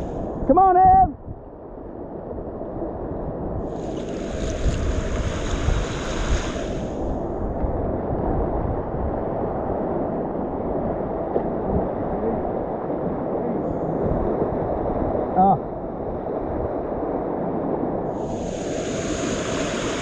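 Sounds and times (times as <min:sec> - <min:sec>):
bright hiss: 0:03.7 - 0:07.1, 0:18.1 - 0:20.0
river whitewater rushing: 0:18.3 - 0:20.0.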